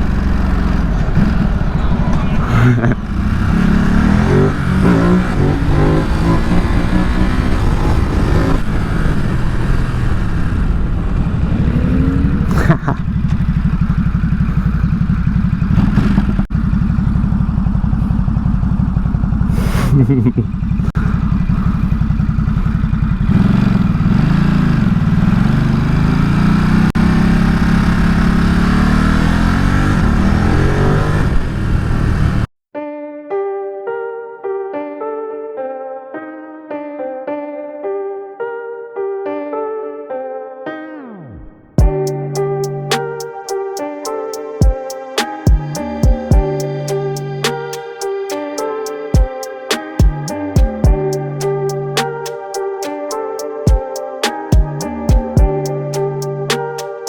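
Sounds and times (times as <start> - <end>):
motorcycle engine accelerating hard: 0.0 - 32.5.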